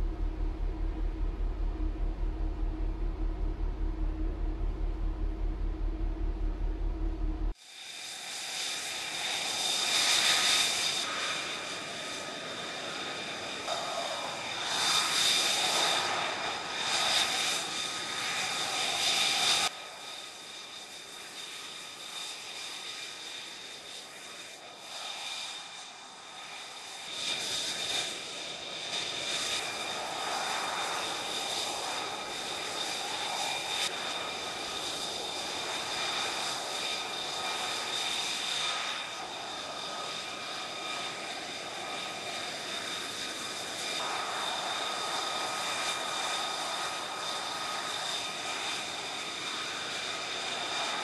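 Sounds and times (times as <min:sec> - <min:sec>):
rushing noise: 0:00.0 - 0:07.6
jet engine turbine whine: 0:00.0 - 0:51.0.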